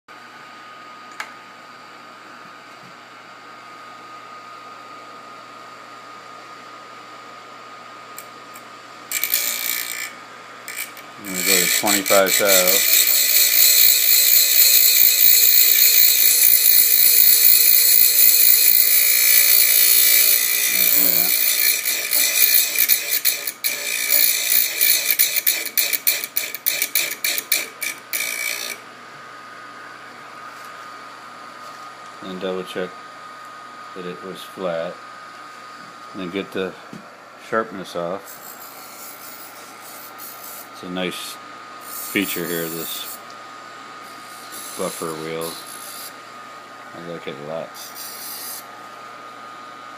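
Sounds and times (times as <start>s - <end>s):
fan-like background hum: 0.1s - 49.9s
metal grinding: 9.1s - 28.8s.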